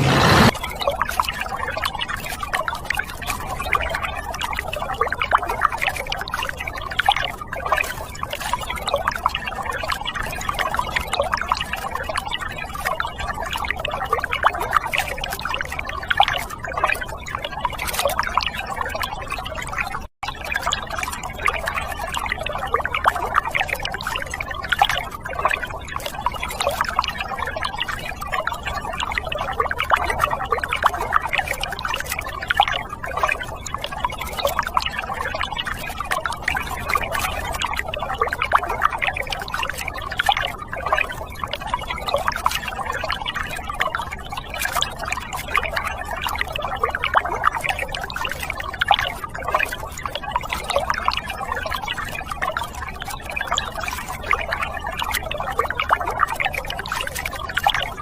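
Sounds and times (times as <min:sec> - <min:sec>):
water trickling and splashing: 0:00.7 - 0:58.0.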